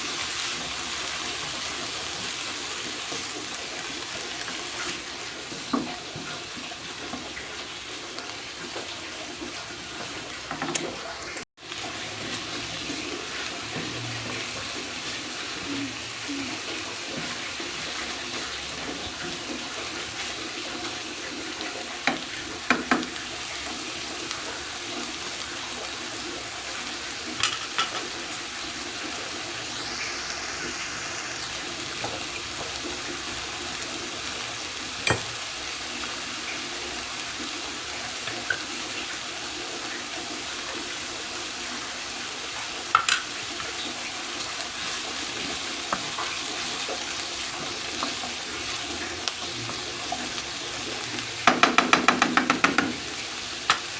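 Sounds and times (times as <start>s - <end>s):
food sizzling in a pan: 0.0s - 53.9s
utensil knocking against pan: 51.4s - 53.0s.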